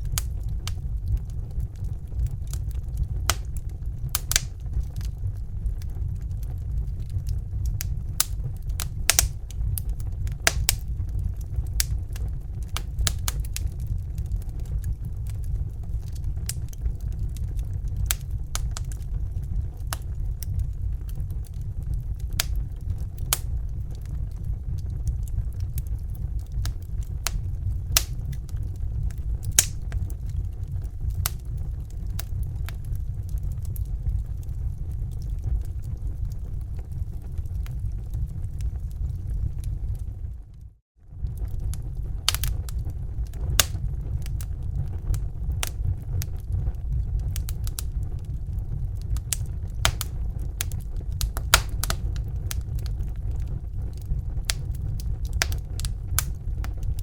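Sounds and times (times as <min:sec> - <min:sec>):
fire crackling and popping: 0:00.0 - 0:57.0
low rumble: 0:00.0 - 0:57.0.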